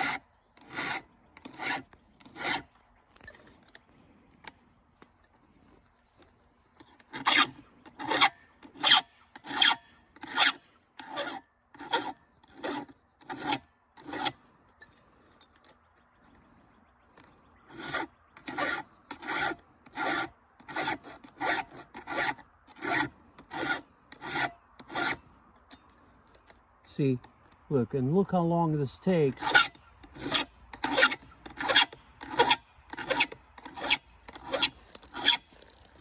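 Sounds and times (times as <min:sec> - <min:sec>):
hand file rasping on chain: 0:00.0 - 0:03.4, 0:06.8 - 0:14.4, 0:17.7 - 0:25.9, 0:29.2 - 0:36.0
crickets chirping: 0:00.0 - 0:36.0.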